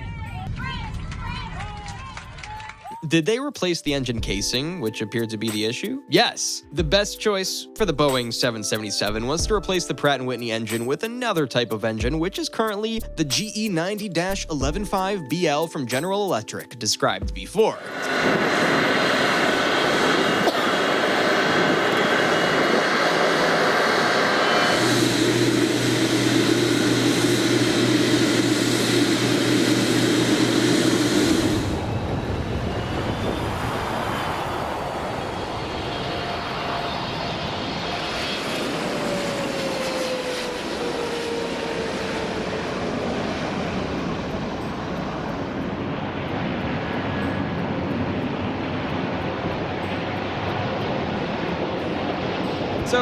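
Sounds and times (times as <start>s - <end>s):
jet engine hiss and whine: 17.6s - 53.0s.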